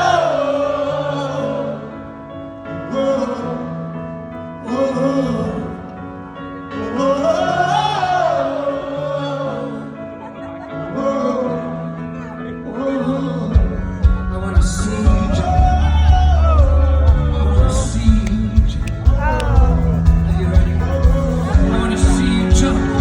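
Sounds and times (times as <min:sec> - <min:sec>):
man singing a pop ballad: 0:00.0 - 0:06.0, 0:06.6 - 0:10.1, 0:10.8 - 0:23.0
heavy bass line and beat: 0:15.6 - 0:23.0.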